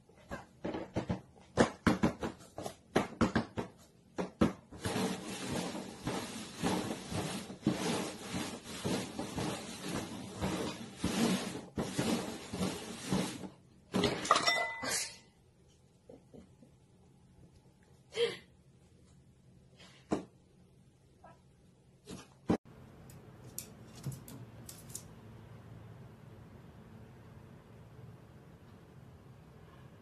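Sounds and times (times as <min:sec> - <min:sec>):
paper cups scraping and rustling: 0:04.8 - 0:13.6.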